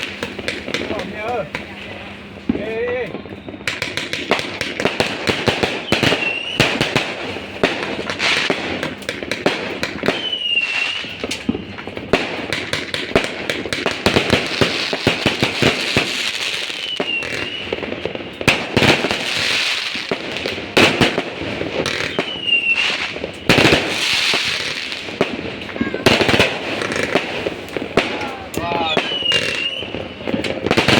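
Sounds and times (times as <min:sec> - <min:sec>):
fireworks cracks and bangs: 0:00.0 - 0:30.9
high firework whistle: 0:03.1 - 0:08.5, 0:09.9 - 0:11.8, 0:14.0 - 0:20.2, 0:20.8 - 0:25.0, 0:28.6 - 0:30.9.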